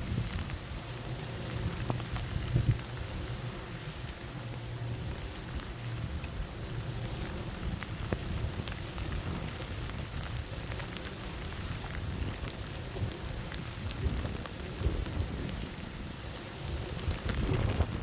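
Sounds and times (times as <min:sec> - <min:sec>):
low rumble of wind: 0:00.0 - 0:18.0
rain drop taps: 0:00.0 - 0:18.0
steady rain: 0:00.0 - 0:18.0.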